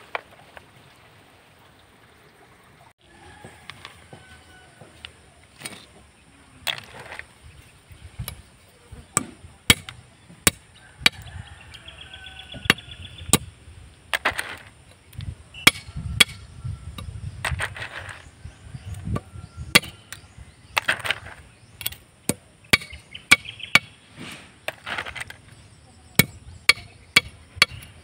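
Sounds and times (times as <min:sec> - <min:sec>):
machete chopping snail shells: 0:09.1 - 0:11.3, 0:19.7 - 0:20.2, 0:20.8 - 0:23.9, 0:26.2 - 0:27.9.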